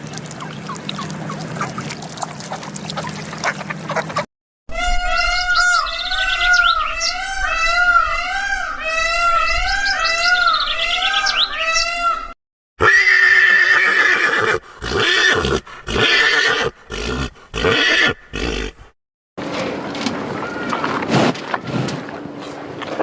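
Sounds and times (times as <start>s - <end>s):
horse neighing: 12.8s - 18.8s.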